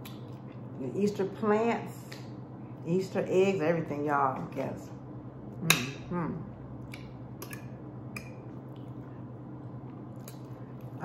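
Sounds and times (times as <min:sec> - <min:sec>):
steady low hum: 0:00.0 - 0:11.0
person chewing food: 0:06.8 - 0:11.0.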